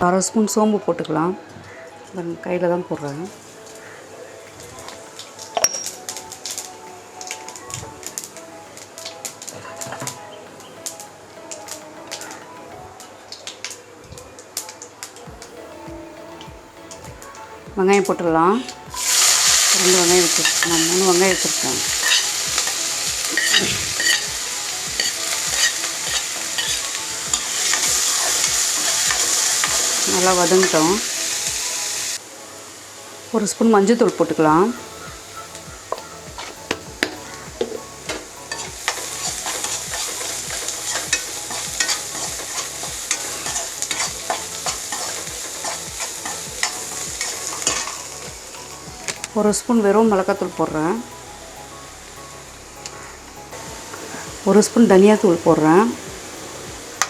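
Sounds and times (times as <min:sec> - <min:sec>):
onions sizzling in oil: 0:04.8 - 0:10.2, 0:16.4 - 0:57.0
spatula scraping a pan: 0:38.5 - 0:48.0.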